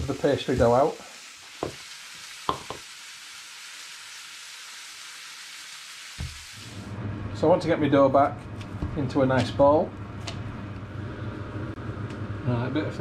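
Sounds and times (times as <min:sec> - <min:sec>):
vegetables sizzling in frying pan: 0:00.0 - 0:06.9.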